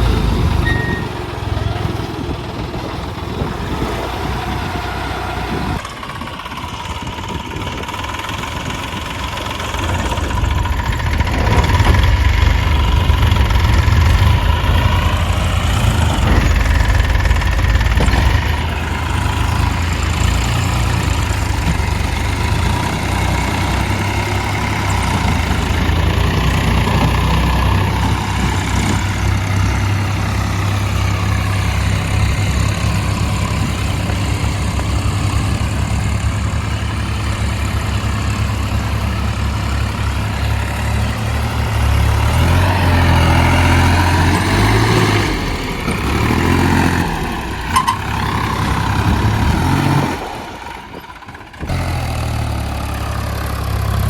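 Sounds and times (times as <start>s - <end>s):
tractor diesel engine throbbing: 0.0s - 54.0s.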